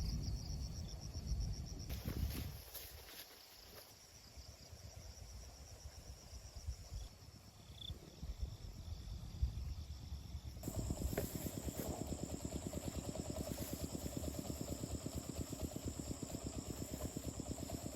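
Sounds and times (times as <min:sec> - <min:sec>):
crickets chirping: 0:00.0 - 0:17.9
low uneven rumble: 0:10.6 - 0:17.9
small engine running: 0:10.6 - 0:17.9.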